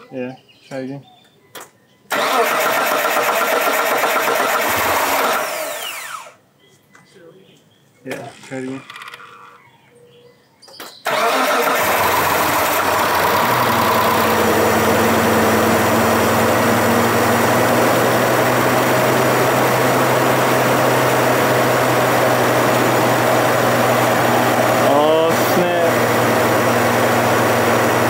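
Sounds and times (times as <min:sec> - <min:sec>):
engine starting and idling: 0:02.1 - 0:06.4, 0:11.0 - 0:28.0.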